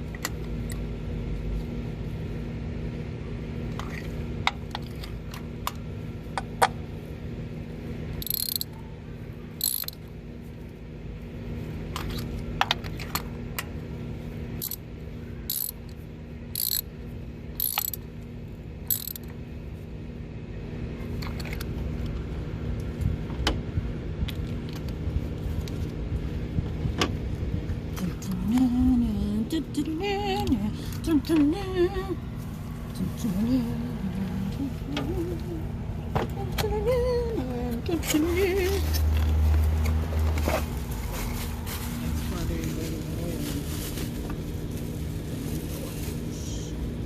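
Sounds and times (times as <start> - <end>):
steady low hum: 0.0 - 47.0
metal tools clinking: 8.2 - 8.7, 9.6 - 10.0, 15.5 - 15.8, 16.6 - 16.8, 17.6 - 18.0, 18.9 - 19.2
socket ratchet clicking: 8.2 - 8.7, 9.6 - 10.0, 15.5 - 15.8, 16.6 - 16.8, 17.6 - 18.0, 18.9 - 19.3.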